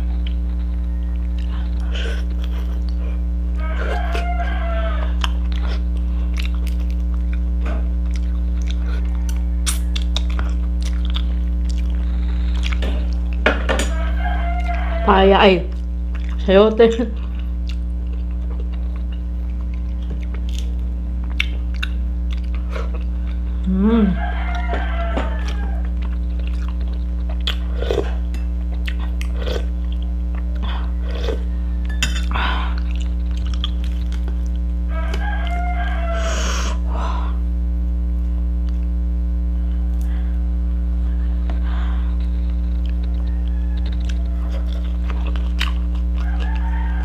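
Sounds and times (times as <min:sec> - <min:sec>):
loud electrical hum: 0:00.0 - 0:47.0
soft chewing and mouth clicks: 0:05.0 - 0:13.4, 0:15.7 - 0:16.5, 0:17.1 - 0:23.7, 0:25.4 - 0:31.4, 0:32.7 - 0:35.6, 0:42.2 - 0:47.0.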